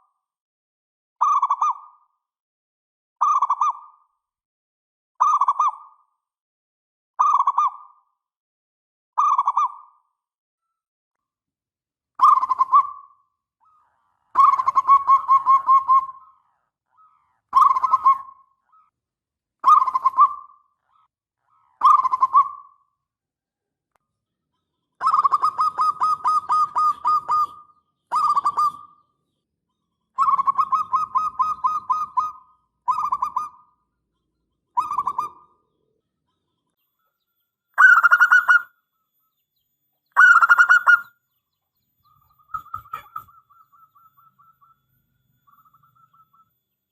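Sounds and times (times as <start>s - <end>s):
dove cooing: 13.6s - 18.8s, 25.0s - 29.0s, 30.2s - 33.6s, 34.8s - 35.6s, 37.8s - 38.7s, 40.2s - 41.2s, 42.5s - 44.8s.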